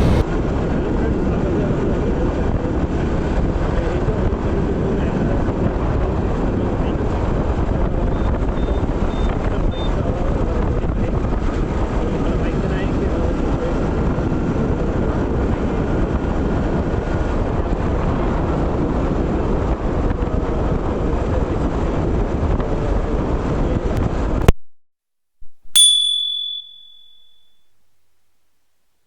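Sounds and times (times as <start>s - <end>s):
wind buffeting: 0.0s - 0.2s
motorcycle road and engine noise: 0.0s - 24.0s
bell-like ding: 25.7s - 28.0s.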